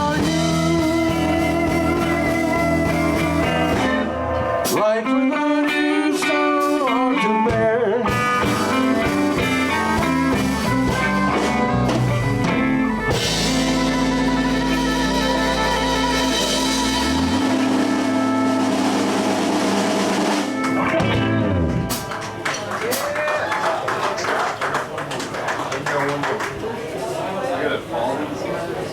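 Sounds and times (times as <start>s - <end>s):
lead guitar bent notes: 0.0s - 22.6s
blues band playing: 0.0s - 23.2s
cymbals washing: 8.5s - 21.0s.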